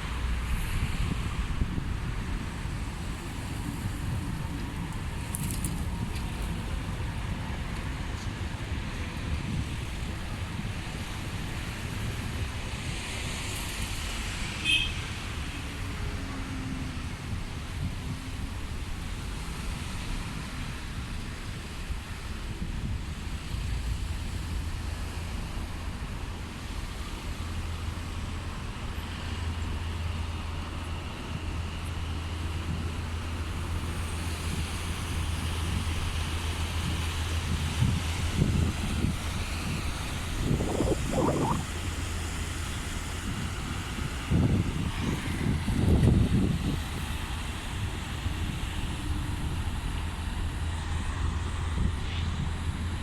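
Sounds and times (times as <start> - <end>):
wind: 0.0 - 53.0
water noise: 23.1 - 45.7.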